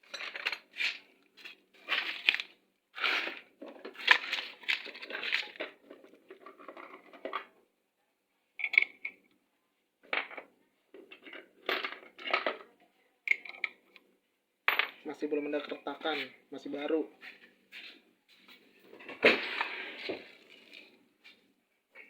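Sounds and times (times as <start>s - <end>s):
small metal parts clattering: 0.0s - 7.5s, 11.1s - 12.7s.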